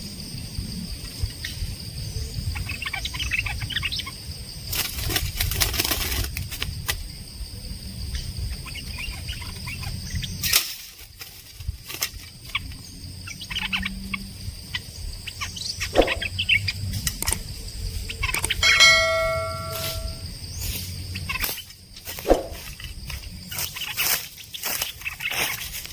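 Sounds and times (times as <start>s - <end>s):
birds chirping: 17.6s - 20.6s
steady high drone: 18.6s - 20.2s.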